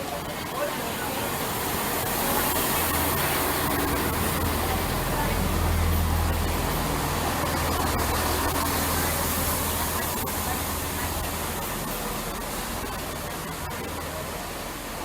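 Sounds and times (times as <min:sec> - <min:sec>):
train engine hum: 0:00.0 - 0:15.0
train rumble and hiss: 0:00.0 - 0:15.0.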